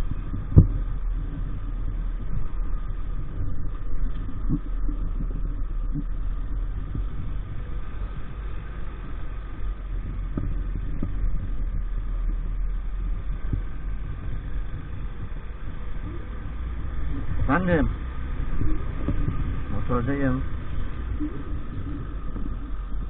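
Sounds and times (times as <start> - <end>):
heavy low rumble: 0.0 - 23.0
moped engine running: 0.0 - 23.0.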